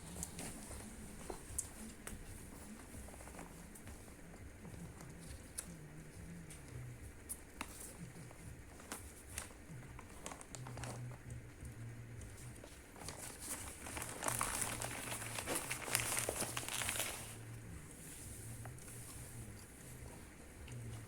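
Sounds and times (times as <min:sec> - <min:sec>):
food wrapping crinkling: 0:12.8 - 0:17.4.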